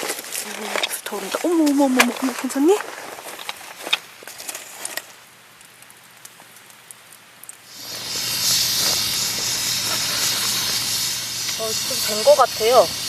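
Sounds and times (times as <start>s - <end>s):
pressure cooker hissing: 7.7s - 13.0s.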